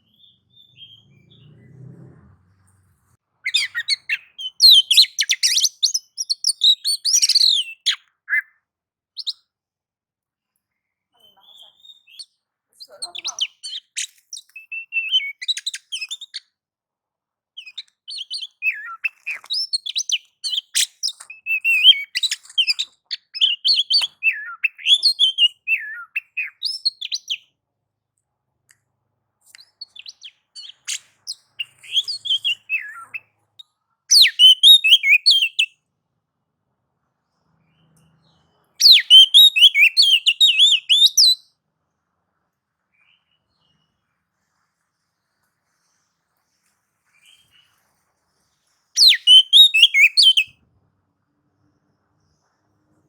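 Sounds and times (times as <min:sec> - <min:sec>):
bird singing chirps and trills: 0:00.0 - 0:01.9, 0:03.5 - 0:08.5, 0:11.2 - 0:16.4, 0:17.6 - 0:27.4, 0:29.6 - 0:33.3, 0:34.1 - 0:35.7, 0:38.8 - 0:41.4, 0:49.0 - 0:50.5.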